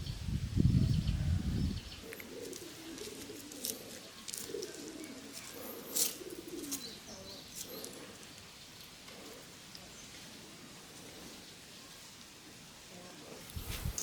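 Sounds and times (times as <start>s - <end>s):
pigeons cooing: 0.8s - 9.7s.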